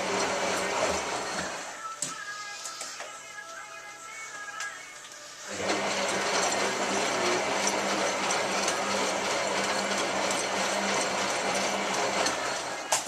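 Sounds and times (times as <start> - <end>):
washing machine motor humming: 0.0 - 1.8, 5.5 - 13.0.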